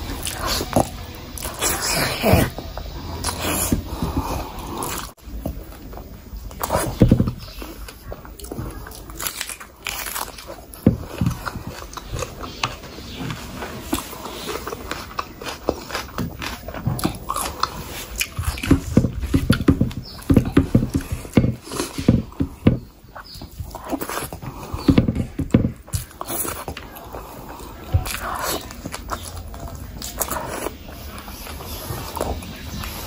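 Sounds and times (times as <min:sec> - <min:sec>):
wet chewing and lip smacking: 0:00.0 - 0:33.0.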